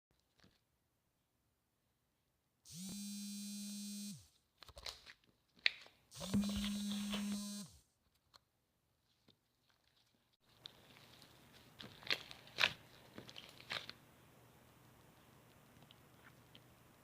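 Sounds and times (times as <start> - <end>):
electric device buzzing: 2.7 - 4.3, 6.2 - 7.8.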